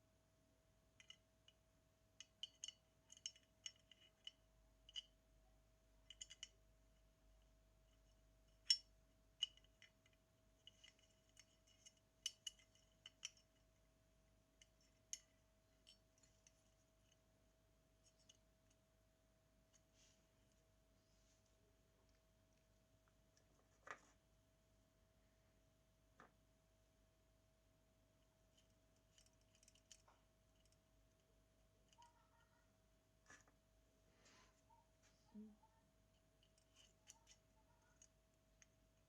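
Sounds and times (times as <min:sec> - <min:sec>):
faint steady hum: 0:00.0 - 0:39.0
small tools clicking and tapping: 0:01.0 - 0:01.6, 0:02.2 - 0:05.2, 0:06.0 - 0:06.6, 0:07.9 - 0:13.7, 0:14.6 - 0:17.2, 0:18.0 - 0:18.8, 0:28.5 - 0:30.8, 0:36.2 - 0:38.8.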